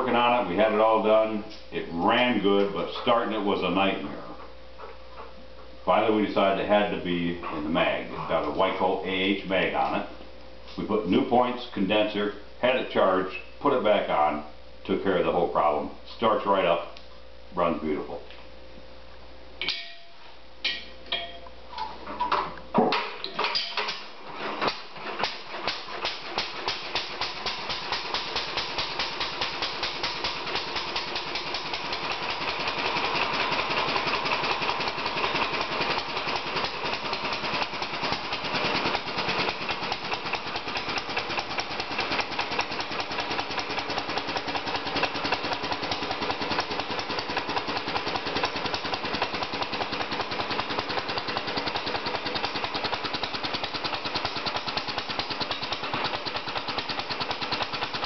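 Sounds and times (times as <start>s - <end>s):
single-cylinder engine starting: 23.4s - 58.0s.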